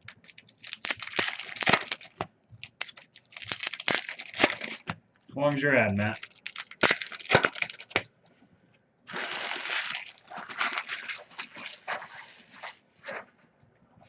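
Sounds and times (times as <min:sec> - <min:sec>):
wrappers tearing and crinkling: 0:00.0 - 0:04.9, 0:06.0 - 0:08.0, 0:09.1 - 0:12.7.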